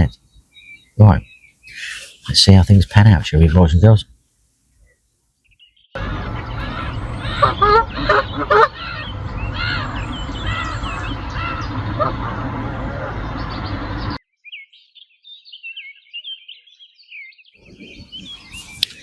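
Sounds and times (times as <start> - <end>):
birds chirping: 0.0 - 4.0, 6.0 - 14.2, 17.6 - 19.0
wind rumbling on microphone: 6.0 - 14.2, 17.6 - 19.0.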